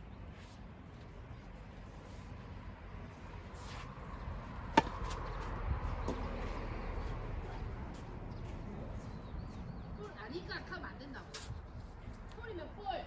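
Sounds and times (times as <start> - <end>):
tennis ball struck by racket: 4.6 - 6.4.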